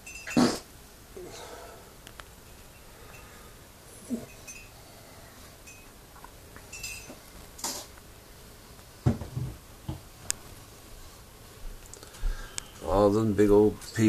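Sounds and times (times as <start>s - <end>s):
glass clinking and scraping: 0.0s - 0.5s, 4.1s - 4.8s, 5.6s - 5.9s, 6.6s - 7.2s
dull thumps: 9.0s - 10.1s.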